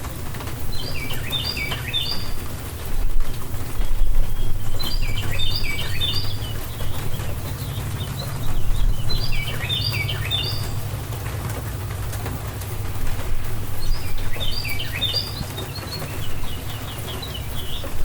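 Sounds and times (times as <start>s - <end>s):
rain falling: 0.0s - 18.0s
songbird singing: 0.0s - 18.0s
low rumble: 6.4s - 17.8s.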